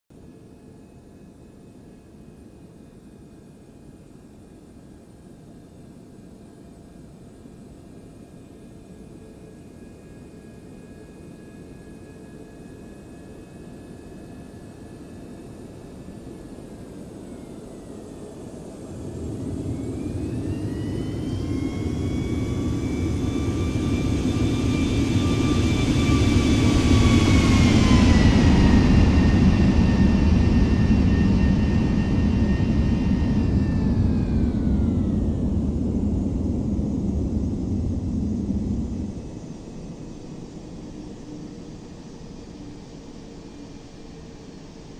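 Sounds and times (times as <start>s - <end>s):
jet engines passing by: 12.8s - 44.9s.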